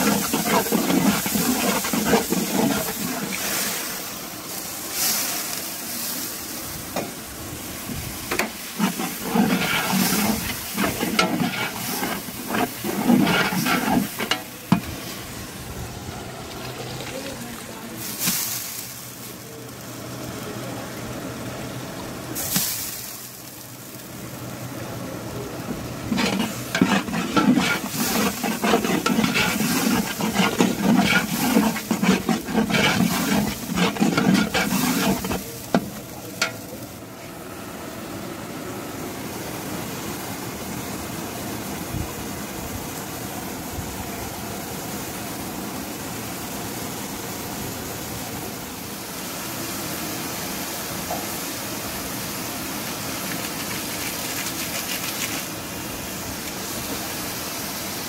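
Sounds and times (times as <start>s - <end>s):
ladle scraping a pot: 0.0s - 3.8s, 8.3s - 15.0s, 26.1s - 36.6s
masala sizzling in oil: 0.0s - 38.0s, 48.7s - 58.0s.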